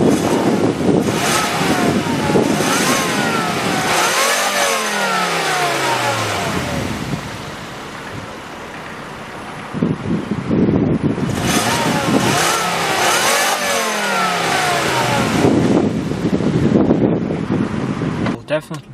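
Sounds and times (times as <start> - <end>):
car engine revving: 0.0 - 18.9.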